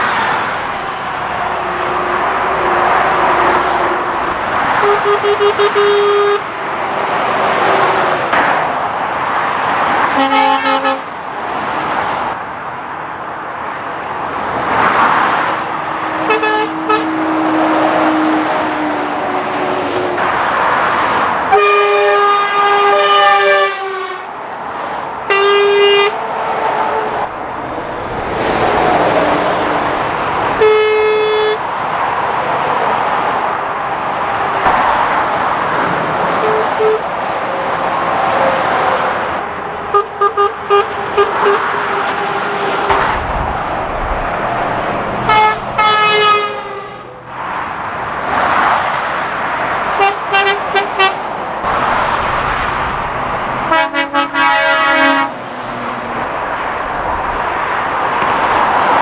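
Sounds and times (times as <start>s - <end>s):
traffic passing at speed: 0.0s - 59.0s
vehicle horns sounding: 0.9s - 8.4s, 10.0s - 11.1s, 16.0s - 20.7s, 21.5s - 24.3s, 25.3s - 27.3s, 30.4s - 31.7s, 36.2s - 37.1s, 38.4s - 47.3s, 49.9s - 52.1s, 53.6s - 55.5s.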